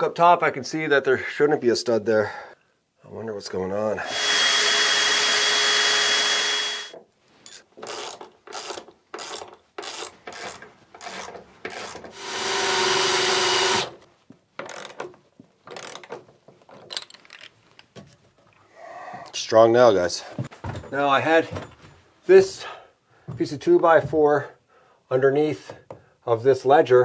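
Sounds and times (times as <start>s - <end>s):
power drill whirring: 4.0s - 7.0s, 11.8s - 14.0s.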